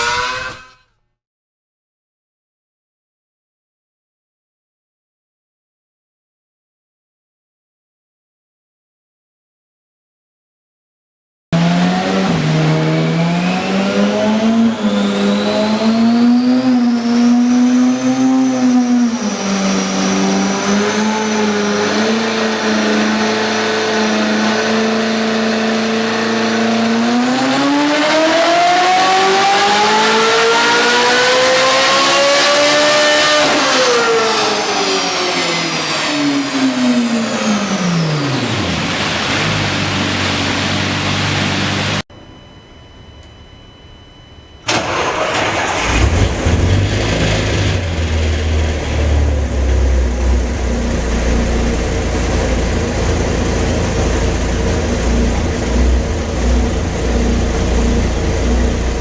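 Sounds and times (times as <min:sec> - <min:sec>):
car engine revving: 0:00.0 - 0:00.8, 0:11.6 - 0:42.0, 0:44.7 - 0:59.0.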